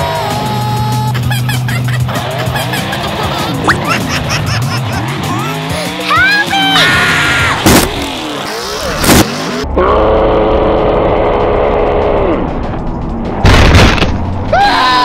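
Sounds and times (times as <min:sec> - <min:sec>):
truck crashing: 0:13.4 - 0:14.4.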